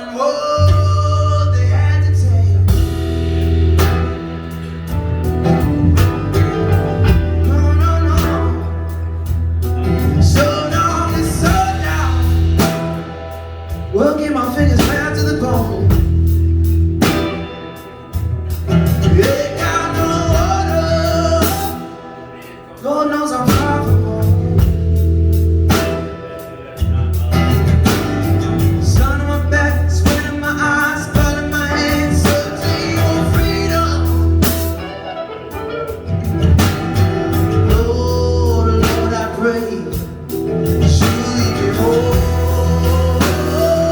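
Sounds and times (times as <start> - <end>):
bass guitar: 0.0 - 43.9
drum kit: 0.0 - 43.9
electric guitar lead melody: 0.0 - 43.9
keyboard: 0.0 - 43.9.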